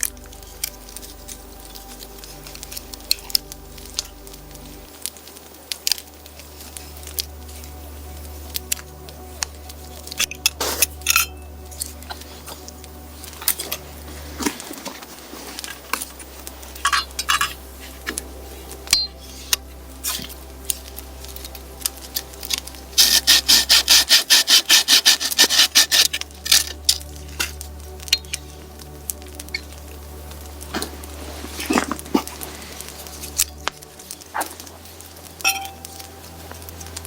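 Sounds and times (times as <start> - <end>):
fast rasping scraping strokes: 23.0 - 26.8.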